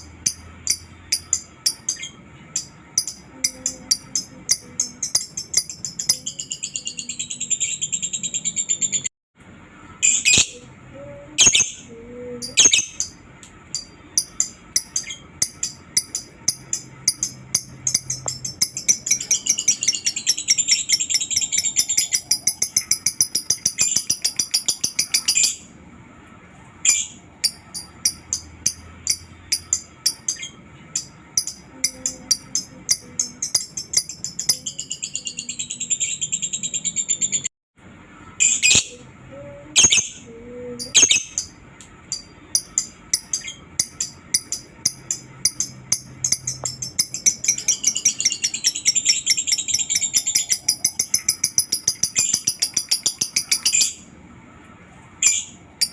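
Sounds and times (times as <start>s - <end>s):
lovebird chattering trill: 10.0s - 10.7s, 11.4s - 25.6s, 38.4s - 39.0s, 39.8s - 54.0s.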